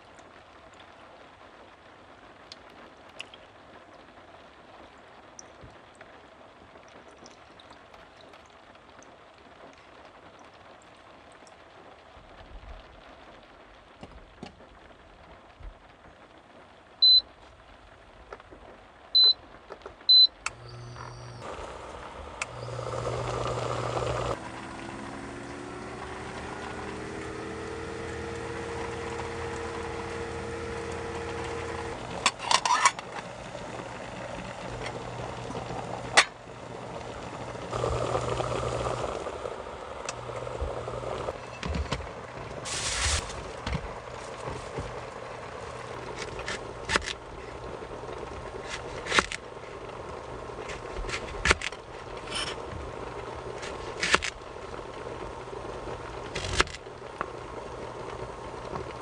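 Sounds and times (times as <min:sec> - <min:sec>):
appliance humming: 0:20.1 - 0:59.0
rising whine: 0:20.7 - 0:46.2
brief hiss: 0:42.6 - 0:43.5.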